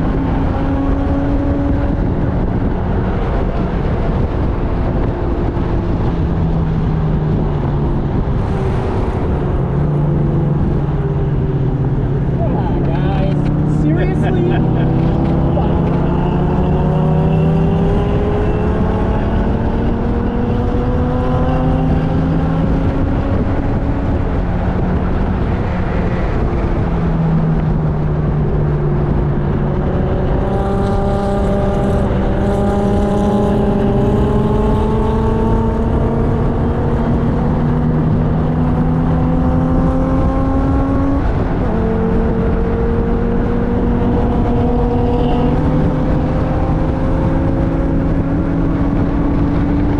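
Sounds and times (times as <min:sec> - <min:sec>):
car engine at full throttle: 0:00.0 - 0:49.9
wind and road noise: 0:00.0 - 0:49.9.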